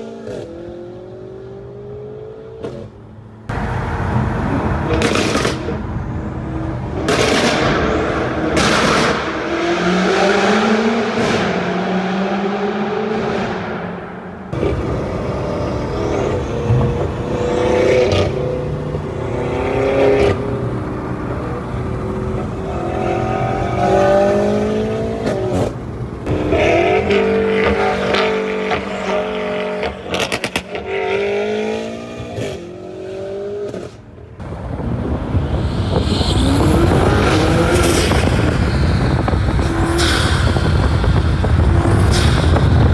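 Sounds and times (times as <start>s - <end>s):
car engine accelerating through gears: 0.0s - 42.9s
exhaust pops: 4.9s - 5.8s, 34.7s - 42.9s.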